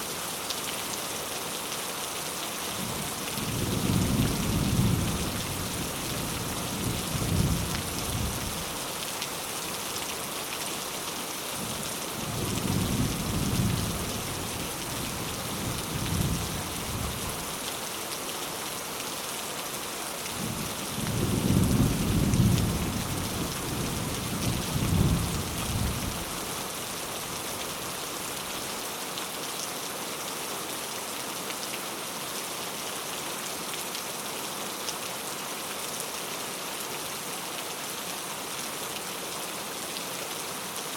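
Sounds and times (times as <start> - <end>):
heavy rain falling: 0.1 - 40.9.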